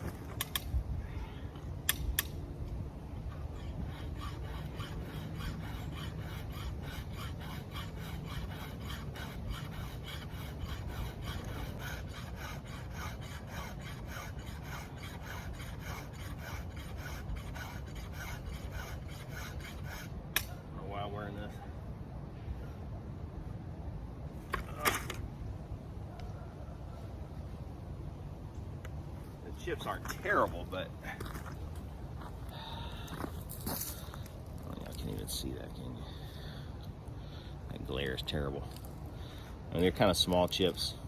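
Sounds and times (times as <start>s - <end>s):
file rasping on chainsaw chain: 3.5s - 20.2s.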